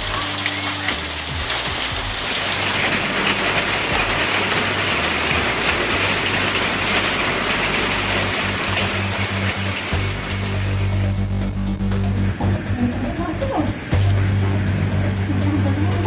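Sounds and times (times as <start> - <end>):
heavy rain and hail falling: 0.0 - 10.3.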